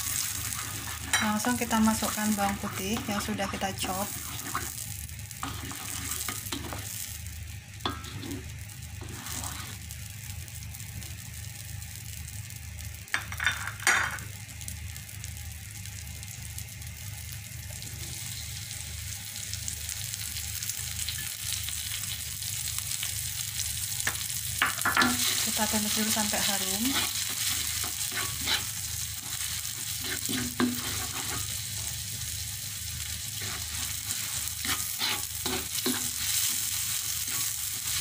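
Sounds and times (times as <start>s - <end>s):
spatula stirring: 0.0s - 4.8s, 5.4s - 7.0s, 7.9s - 9.8s, 24.7s - 32.0s, 33.2s - 38.0s
margarine sizzling in a wok: 0.0s - 38.0s.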